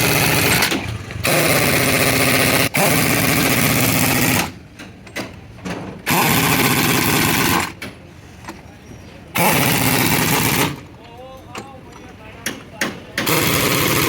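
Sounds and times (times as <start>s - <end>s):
hammering power tool: 0.0s - 4.6s, 6.0s - 7.8s, 9.4s - 10.8s, 12.8s - 14.0s.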